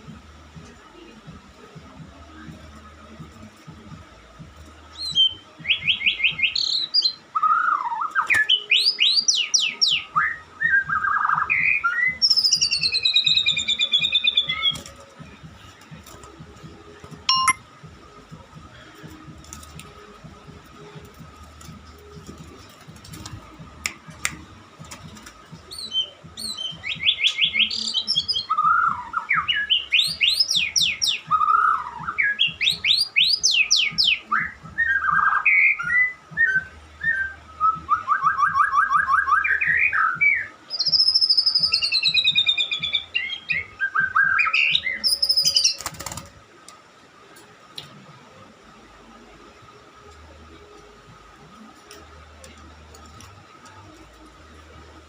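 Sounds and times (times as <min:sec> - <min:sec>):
songbird trills and whistles: 0:04.9 - 0:14.8, 0:17.3 - 0:17.6, 0:25.7 - 0:46.2.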